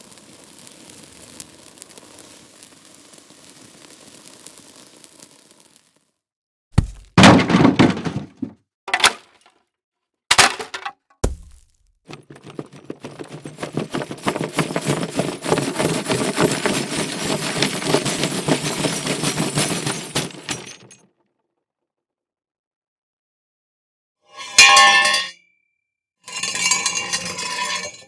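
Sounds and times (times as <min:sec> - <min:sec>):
low thud: 0:06.8 - 0:08.4, 0:11.2 - 0:11.8
short crashes: 0:06.8 - 0:08.6
glass shattering: 0:06.8 - 0:09.2, 0:10.3 - 0:12.2
dense crackling and clattering: 0:06.8 - 0:09.4, 0:10.3 - 0:20.7.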